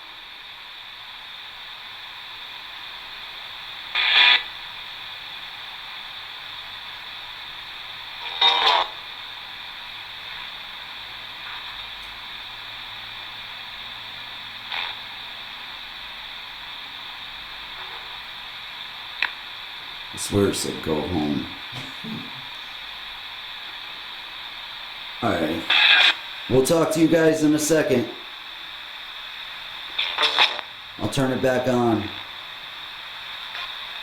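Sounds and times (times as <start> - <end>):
radio static hiss: 0.0 - 34.0
bursts of radio sound: 25.2 - 28.3, 29.8 - 32.3.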